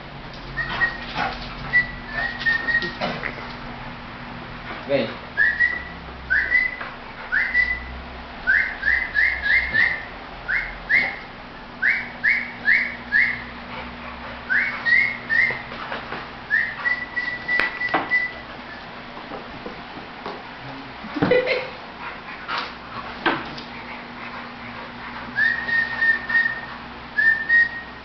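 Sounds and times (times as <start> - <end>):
person whistling for dog: 0.6 - 1.1, 1.7 - 3.0, 5.4 - 7.9, 8.5 - 11.2, 11.8 - 13.4, 14.5 - 15.6, 16.5 - 18.8, 25.4 - 28.0.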